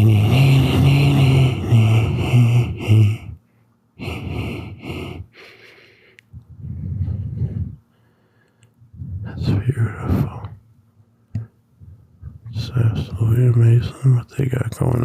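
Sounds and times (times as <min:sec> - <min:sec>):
man breathing heavily: 0:00.0 - 0:10.3.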